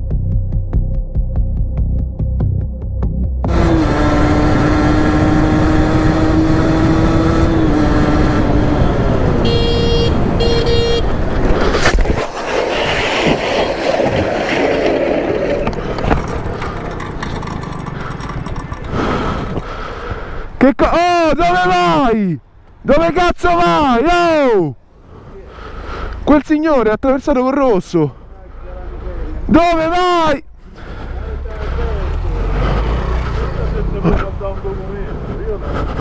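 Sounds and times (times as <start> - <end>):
road noise: 3.4 - 36.0
vehicle horn: 9.3 - 11.2
vehicle engine running: 15.4 - 20.0.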